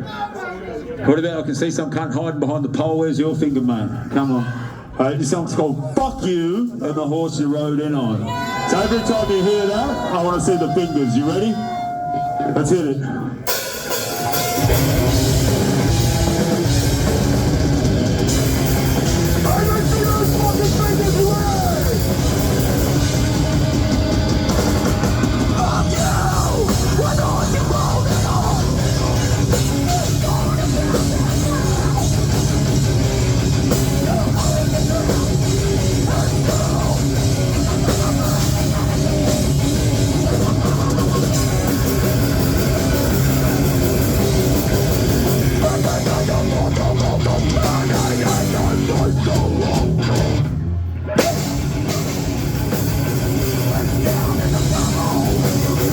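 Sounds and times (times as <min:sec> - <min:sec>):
harsh shouted vocals: 0:07.9 - 0:55.9
live heavy metal band: 0:13.4 - 0:55.9
pounding drums: 0:13.5 - 0:50.4.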